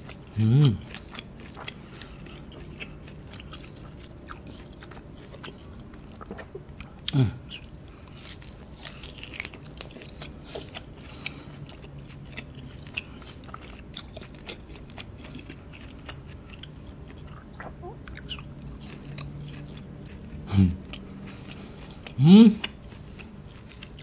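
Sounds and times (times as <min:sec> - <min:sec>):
person humming mm: 0:00.4 - 0:00.8, 0:07.1 - 0:07.5, 0:20.5 - 0:20.8
wet mouth chewing clicks: 0:00.8 - 0:07.7.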